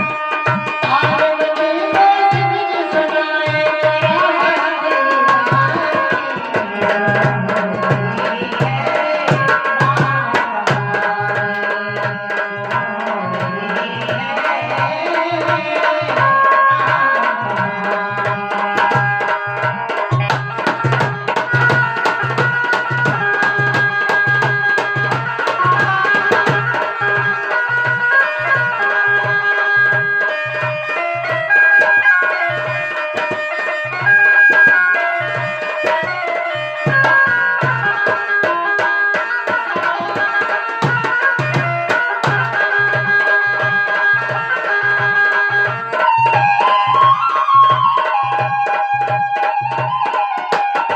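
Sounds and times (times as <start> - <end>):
hand drums beating: 0.0 - 50.9.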